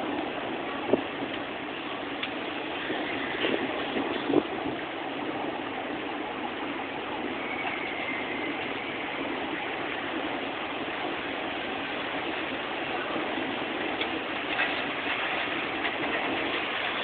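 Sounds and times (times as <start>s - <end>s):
heavy hail clattering: 7.5s - 17.0s.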